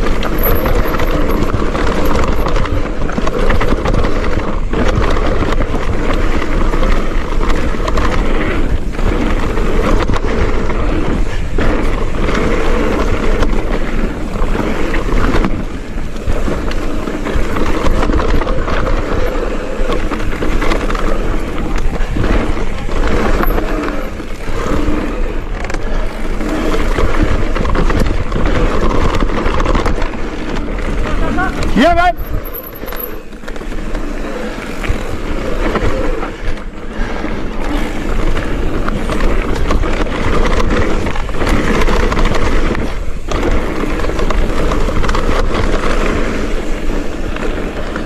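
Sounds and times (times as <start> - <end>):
bike knocks and rattles: 0.0 - 48.0
tyres rumbling over rough ground: 0.0 - 48.0
wind on microphone: 0.0 - 48.0.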